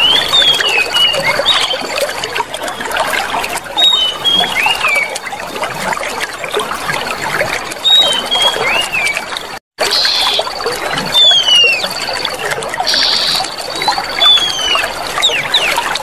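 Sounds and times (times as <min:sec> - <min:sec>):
bird whistling gliding notes: 0:00.0 - 0:02.8, 0:03.8 - 0:05.2, 0:07.8 - 0:09.2, 0:09.9 - 0:16.0
water trickling and gurgling: 0:00.0 - 0:16.0.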